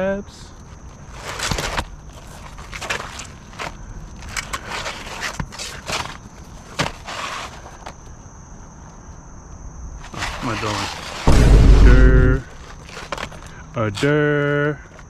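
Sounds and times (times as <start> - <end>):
crunching and scraping of shingles: 0.5 - 8.2, 10.0 - 15.0.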